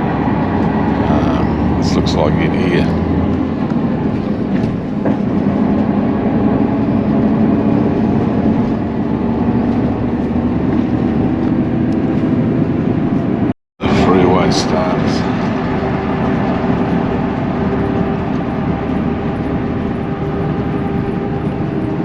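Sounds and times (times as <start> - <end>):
bus engine and road rumble: 0.0 - 22.0.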